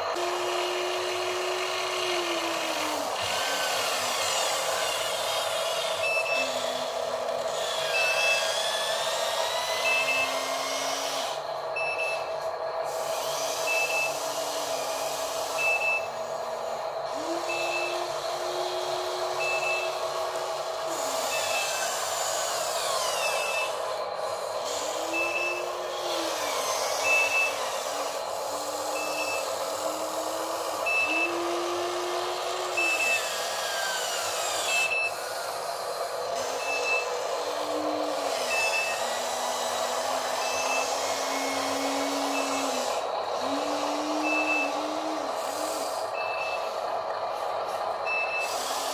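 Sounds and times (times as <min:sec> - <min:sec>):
electric motors whining: 0:00.0 - 0:48.9
high reversing beep: 0:06.0 - 0:06.5, 0:09.8 - 0:10.4, 0:11.8 - 0:12.3, 0:15.6 - 0:16.1, 0:17.5 - 0:18.0, 0:19.4 - 0:20.0, 0:25.1 - 0:25.7, 0:29.0 - 0:29.5, 0:30.8 - 0:31.6, 0:32.7 - 0:33.3, 0:36.6 - 0:37.1, 0:44.2 - 0:44.9, 0:46.2 - 0:46.7.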